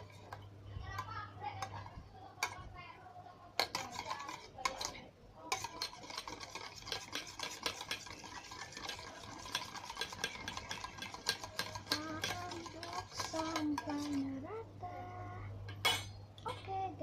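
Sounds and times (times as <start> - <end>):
slime being stirred: 3.6 - 14.5.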